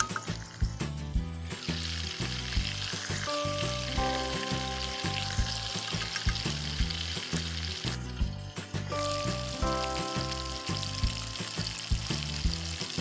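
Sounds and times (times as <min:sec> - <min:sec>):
background music with regular beat: 0:00.0 - 0:13.0
food sizzling in hot oil: 0:00.0 - 0:13.0.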